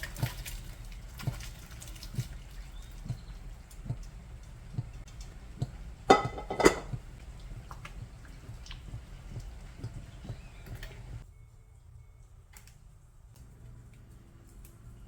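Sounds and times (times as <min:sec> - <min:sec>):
background hum: 0:00.0 - 0:15.0
ringing dish clinks: 0:06.1 - 0:06.9.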